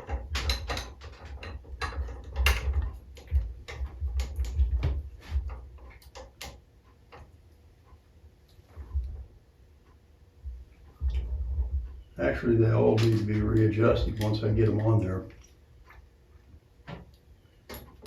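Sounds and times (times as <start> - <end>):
low handling bumps: 0.0 - 6.0, 8.7 - 9.4, 10.4 - 15.3.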